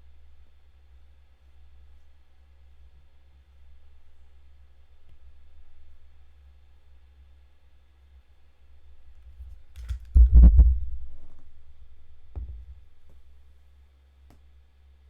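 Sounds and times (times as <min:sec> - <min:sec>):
dull heavy thumps: 0:09.3 - 0:11.4, 0:12.3 - 0:13.2
knock: 0:12.4 - 0:12.8.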